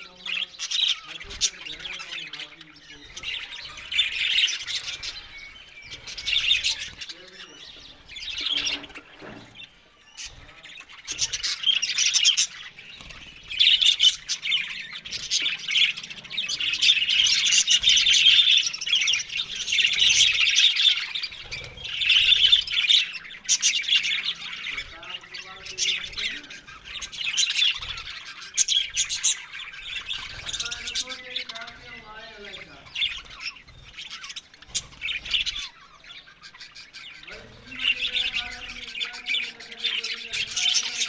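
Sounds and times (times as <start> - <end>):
budgerigars chattering and chirping: 0.0 - 41.0.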